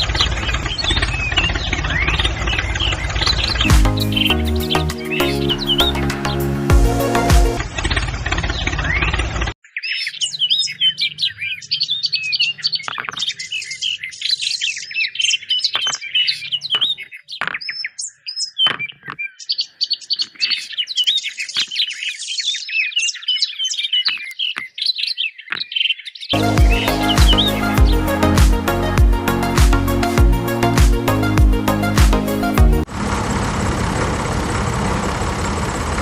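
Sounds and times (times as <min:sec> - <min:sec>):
small birds chirping and twittering: 0:00.0 - 0:31.8
music: 0:03.6 - 0:07.6, 0:26.4 - 0:32.9.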